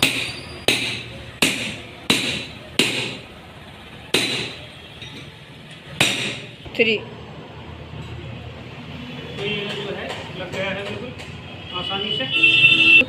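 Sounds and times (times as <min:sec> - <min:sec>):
hammer striking metal: 0:00.0 - 0:03.3, 0:04.1 - 0:05.4, 0:06.0 - 0:06.6.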